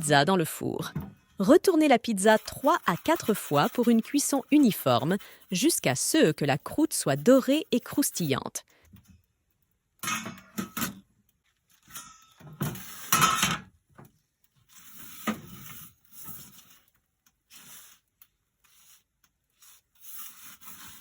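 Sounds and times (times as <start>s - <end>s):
metal peel scraping stone: 1.3s - 8.5s, 14.7s - 16.9s, 19.6s - 21.0s.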